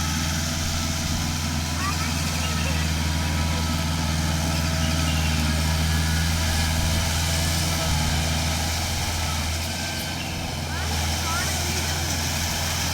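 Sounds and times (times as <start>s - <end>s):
tractor diesel engine running: 0.0s - 12.9s.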